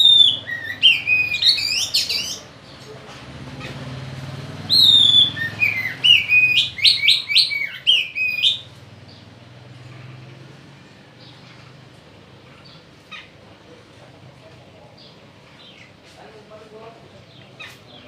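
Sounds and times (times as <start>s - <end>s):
bird whistling calls: 0.0s - 2.5s, 4.7s - 8.7s.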